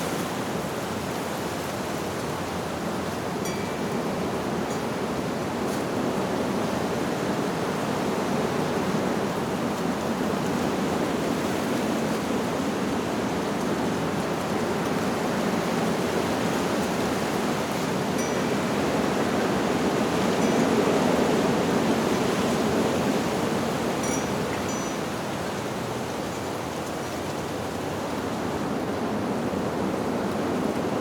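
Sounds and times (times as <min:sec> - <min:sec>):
wind blowing through leaves: 0:00.0 - 0:31.0.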